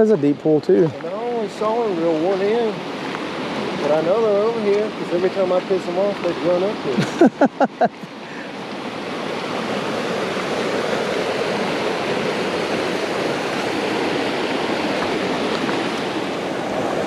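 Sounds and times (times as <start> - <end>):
creek water running over rocks: 0.0 - 17.0.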